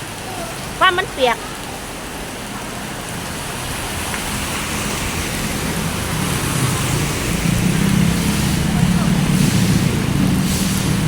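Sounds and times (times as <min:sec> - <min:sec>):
heavy rain falling: 0:00.0 - 0:11.0
vehicle engine hum: 0:03.4 - 0:11.0.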